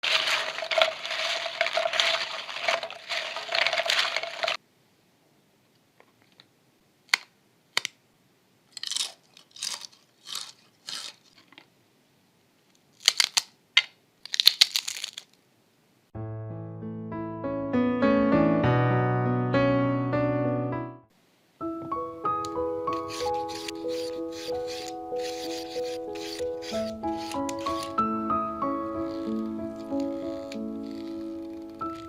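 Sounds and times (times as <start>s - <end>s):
crunching crisps: 0.0s - 4.6s, 8.7s - 11.5s, 12.9s - 13.5s, 14.2s - 15.4s, 23.1s - 28.1s, 28.8s - 32.0s
dense continuous crackling: 28.6s - 32.0s.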